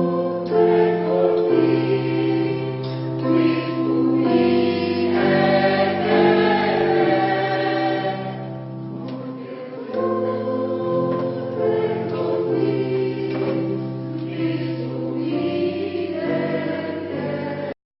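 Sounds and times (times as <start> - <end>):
choir singing: 0.0 - 17.8.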